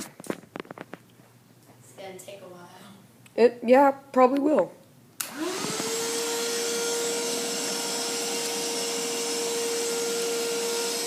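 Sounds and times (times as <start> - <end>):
vacuum cleaner running: 5.2 - 11.0.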